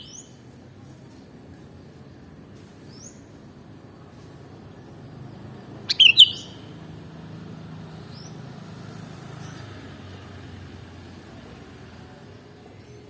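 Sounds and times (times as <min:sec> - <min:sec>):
faint rising chirp: 0:05.7 - 0:06.8.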